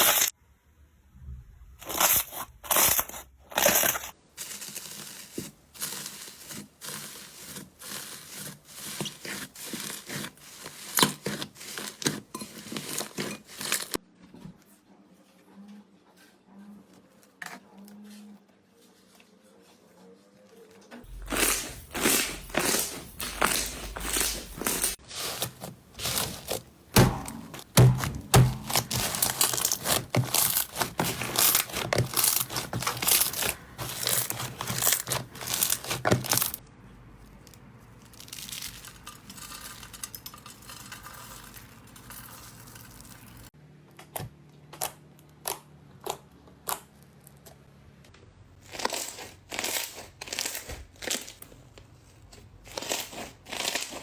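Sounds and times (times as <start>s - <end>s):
slime crackling and popping: 21.1s - 36.6s.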